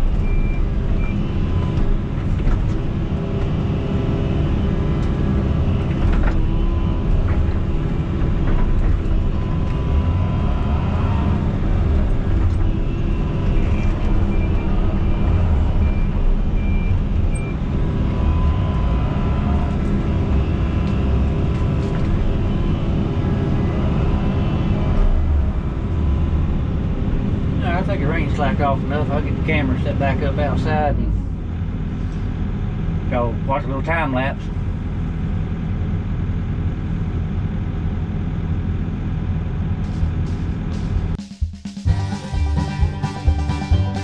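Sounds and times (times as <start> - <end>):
heavy diesel engine running: 0.0 - 41.2, 41.9 - 44.0.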